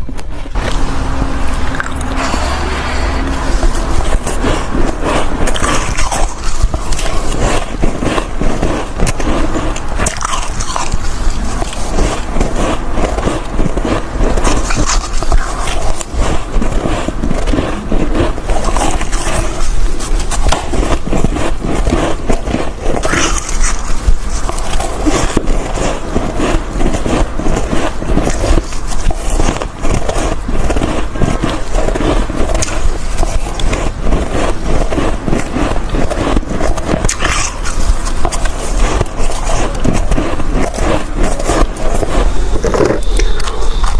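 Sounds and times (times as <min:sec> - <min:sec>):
crunching ice chunks: 0:03.5 - 0:43.9.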